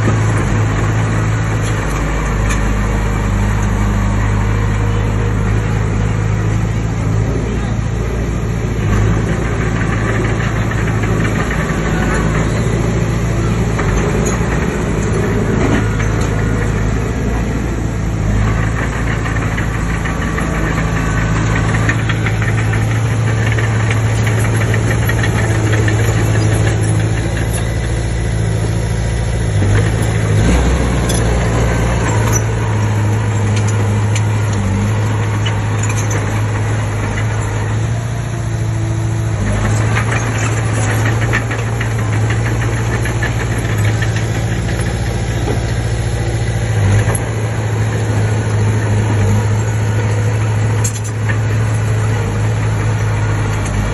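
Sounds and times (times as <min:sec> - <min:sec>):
bulldozer diesel engine running: 0:00.0 - 0:53.9
metallic clatter: 0:18.2 - 0:53.9.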